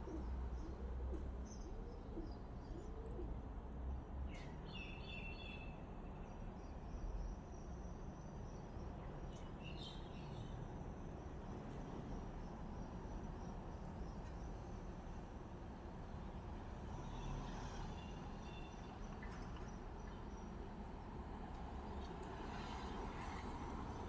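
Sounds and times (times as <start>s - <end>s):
birds cooing: 0.0s - 3.4s.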